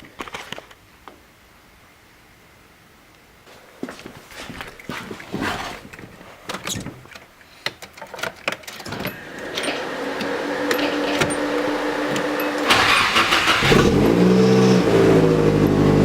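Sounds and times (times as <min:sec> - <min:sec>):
electric motor whine: 0:09.0 - 0:16.0.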